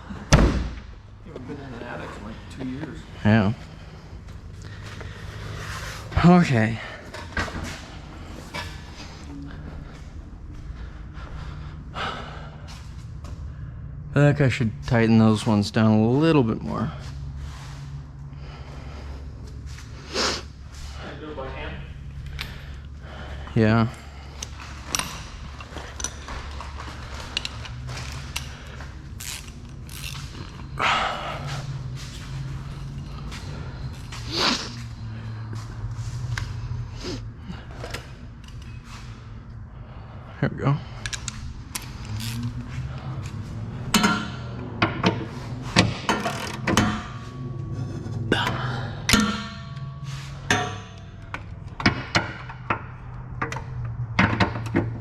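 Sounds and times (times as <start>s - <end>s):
low hum: 0.0s - 55.0s
metallic clicks and clinks of tools: 24.4s - 30.5s.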